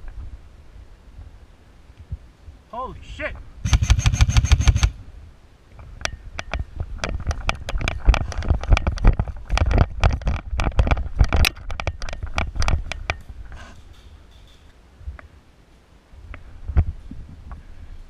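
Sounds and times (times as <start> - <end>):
rapid irregular clicks and knocks: 3.7 - 5.0, 6.0 - 15.3.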